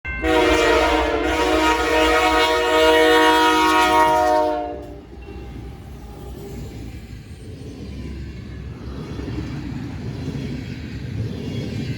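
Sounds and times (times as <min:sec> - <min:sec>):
low rumble of train: 0:00.1 - 0:11.9
locomotive air horn blast: 0:00.2 - 0:05.0.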